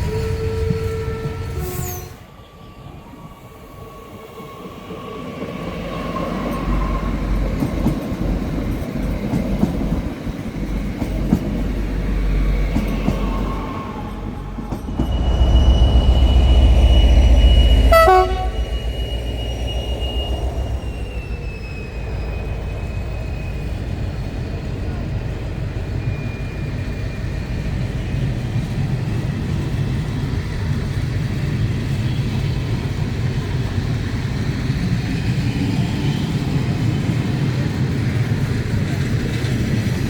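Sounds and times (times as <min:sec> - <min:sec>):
high-pitched train horn: 0:00.0 - 0:02.3, 0:15.0 - 0:21.4
train rumbling past: 0:00.0 - 0:40.0.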